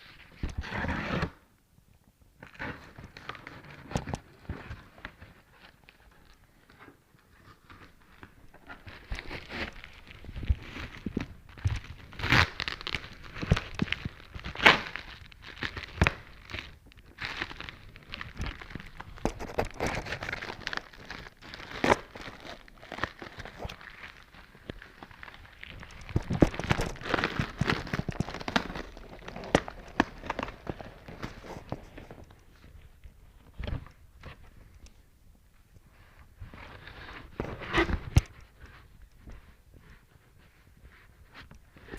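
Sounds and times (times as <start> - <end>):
paper and packaging rustling: 2.5 - 35.0.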